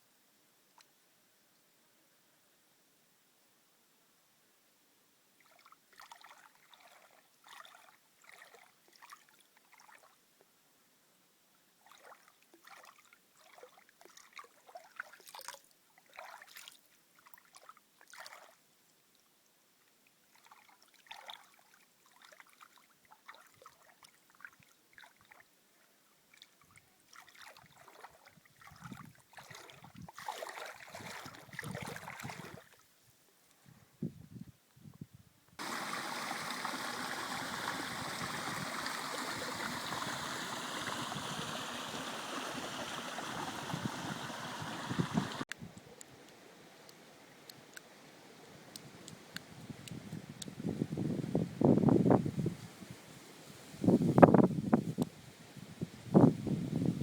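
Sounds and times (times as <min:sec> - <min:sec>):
water trickling and splashing: 0:05.4 - 0:10.2, 0:11.8 - 0:18.6, 0:20.2 - 0:25.4, 0:26.3 - 0:32.8, 0:35.6 - 0:56.7.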